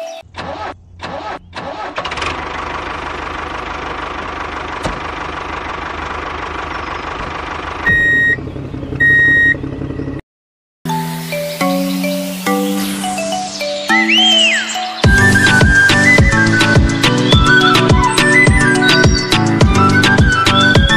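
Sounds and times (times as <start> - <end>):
loud beeps: 7.8 - 8.4, 9.0 - 9.6.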